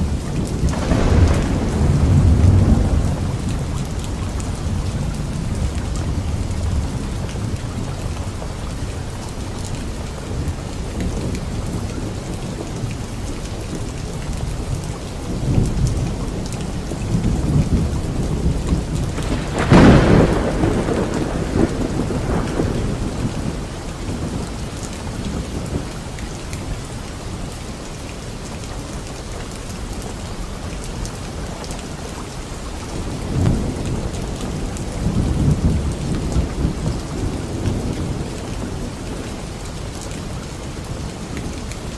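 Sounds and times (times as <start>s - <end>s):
rolling thunder: 0.0s - 8.5s, 15.4s - 26.2s, 33.0s - 41.2s
steady rain: 0.0s - 41.9s
sharp thunderclap: 0.5s - 7.5s, 17.4s - 24.5s.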